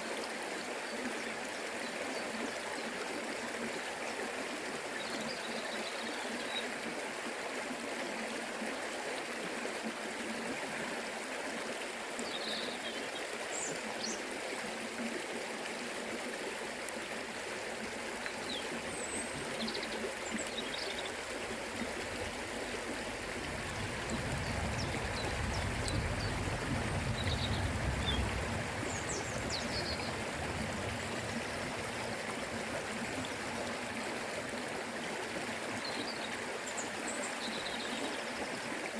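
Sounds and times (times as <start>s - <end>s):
river water rushing: 13.4s - 38.9s
low rumble: 23.1s - 31.2s.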